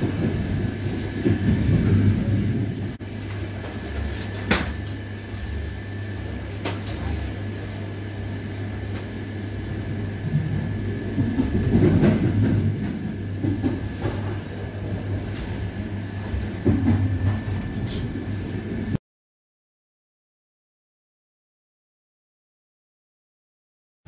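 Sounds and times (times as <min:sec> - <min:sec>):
passing train: 0:00.0 - 0:19.0
train rumbling along track: 0:00.0 - 0:19.0.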